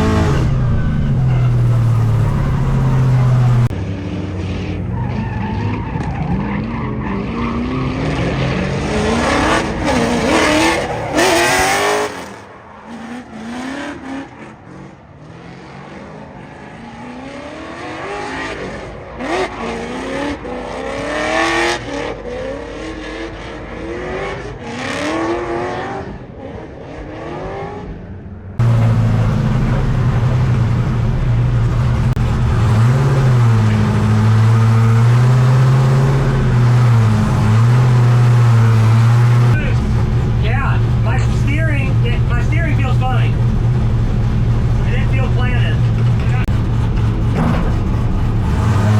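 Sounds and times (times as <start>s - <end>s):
deep engine drone: 0.0s - 5.2s, 28.6s - 48.9s
car engine revving hard: 0.0s - 5.8s, 6.6s - 27.9s, 28.6s - 48.9s.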